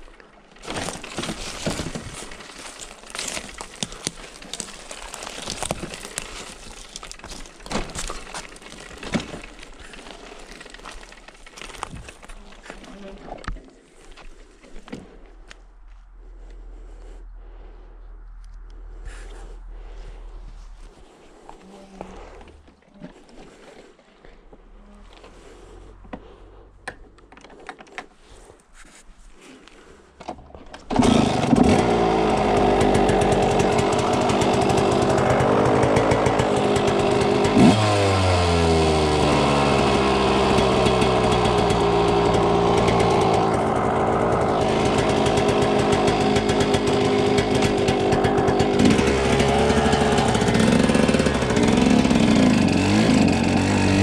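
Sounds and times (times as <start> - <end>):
dirt bike engine revving: 30.9 - 54.0.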